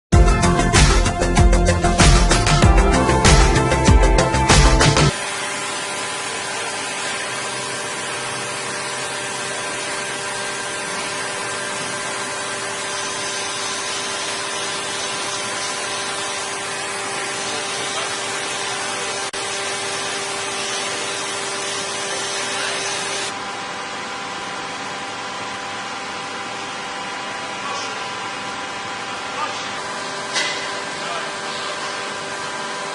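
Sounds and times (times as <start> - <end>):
metal lathe running: 0.2 - 32.9.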